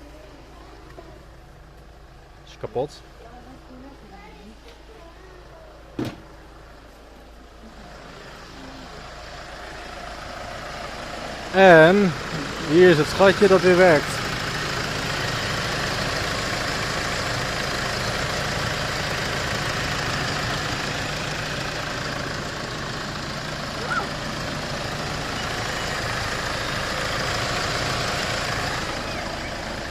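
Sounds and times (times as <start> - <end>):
diesel engine idling: 0.0 - 29.9.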